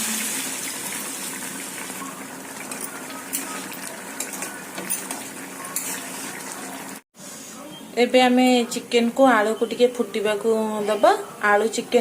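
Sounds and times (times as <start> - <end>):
water hissing in hot oil: 0.0 - 4.2.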